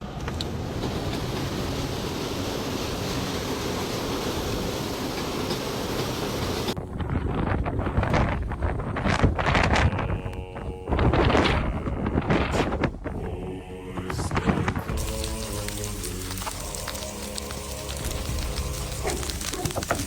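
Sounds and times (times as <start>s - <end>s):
wind buffeting microphone: 6.4s - 15.1s
steady wind hiss: 14.9s - 20.0s.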